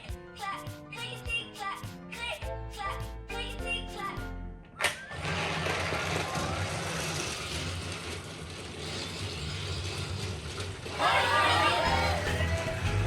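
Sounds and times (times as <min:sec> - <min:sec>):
toy train motor running on track: 0:05.1 - 0:12.7.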